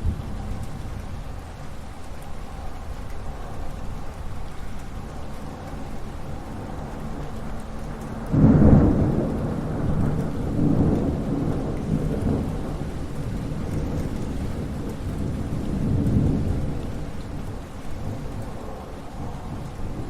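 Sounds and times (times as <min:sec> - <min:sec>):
steady rain: 0:00.0 - 0:20.0
thunder cracking and rolling: 0:08.2 - 0:20.0.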